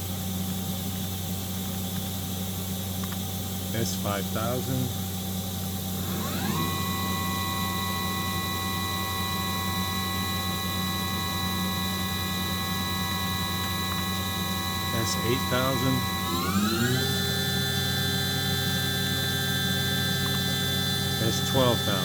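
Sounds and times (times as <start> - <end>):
machine hum: 2.4 - 22.0
spindle whine: 3.8 - 22.0.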